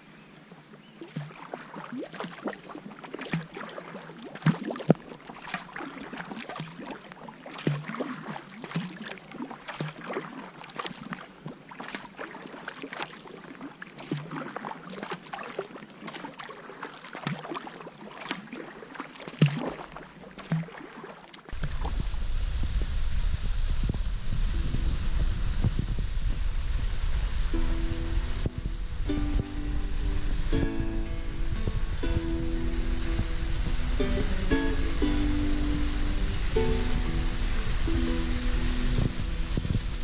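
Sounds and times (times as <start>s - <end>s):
paddle splashing in water: 0.5s - 22.9s, 25.6s - 40.0s
paddle knocks: 7.6s - 9.0s
wind rumble on microphone: 21.5s - 40.0s.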